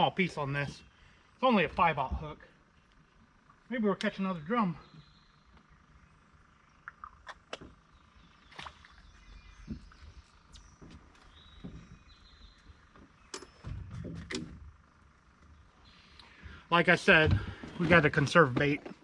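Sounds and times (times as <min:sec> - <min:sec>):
dull thump: 0:17.2 - 0:18.2.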